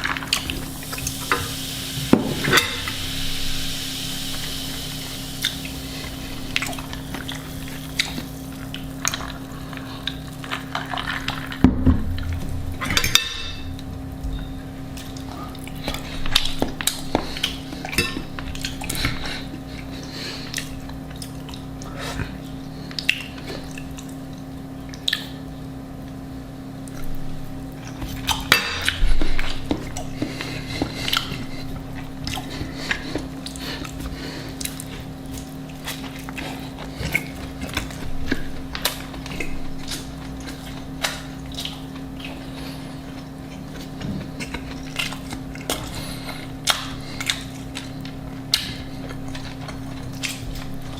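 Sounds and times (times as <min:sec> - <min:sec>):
utensils clinking against dishes: 0:02.1 - 0:03.0, 0:12.8 - 0:14.6, 0:17.4 - 0:18.8, 0:28.2 - 0:29.5
low hum: 0:11.6 - 0:16.5.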